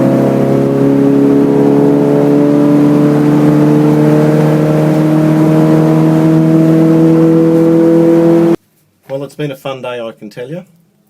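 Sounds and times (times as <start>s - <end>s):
car engine accelerating: 0.0s - 8.6s.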